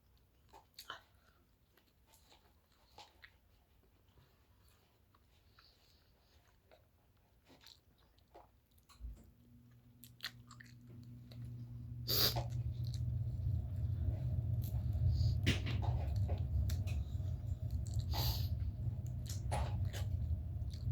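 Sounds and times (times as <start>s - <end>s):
person chewing food: 0.2s - 9.0s, 9.7s - 15.4s, 16.1s - 20.9s
low steady hum: 9.1s - 20.9s.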